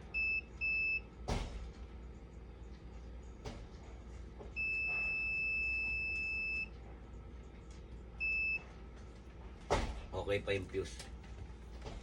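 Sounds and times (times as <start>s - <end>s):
multimeter beeping: 4.6s - 6.7s, 8.2s - 8.6s.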